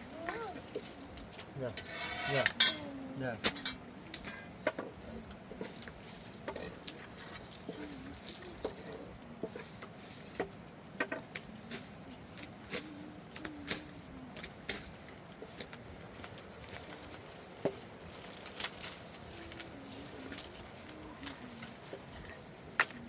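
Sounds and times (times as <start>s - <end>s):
faint steady background noise: 0.0s - 23.0s.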